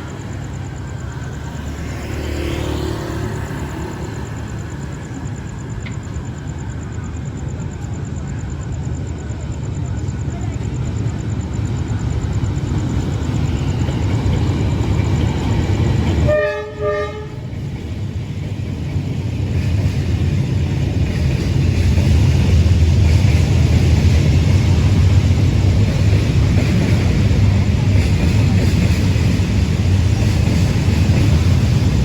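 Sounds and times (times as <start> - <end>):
locomotive rumble: 0.0 - 32.0
locomotive horn toot: 16.2 - 17.4.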